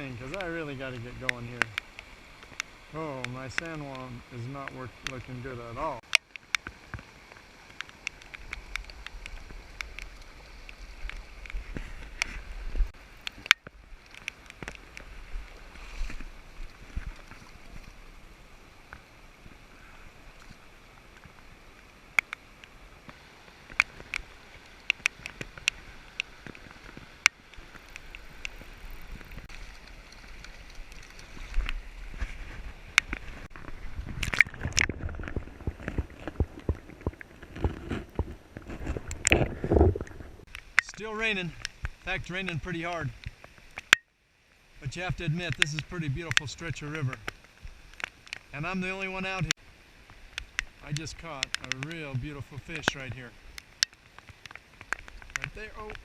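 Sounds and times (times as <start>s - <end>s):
river water rushing: 0.0s - 34.9s
falling rain: 0.0s - 56.0s
raindrops ticking close by: 0.0s - 56.0s.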